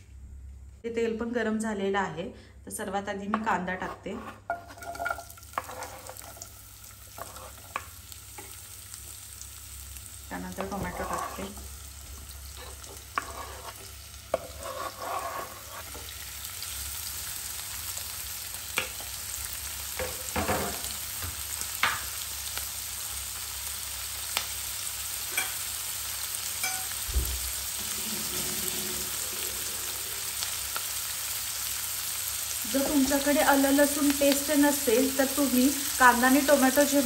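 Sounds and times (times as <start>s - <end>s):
vegetables sizzling in hot oil: 4.2s - 37.0s.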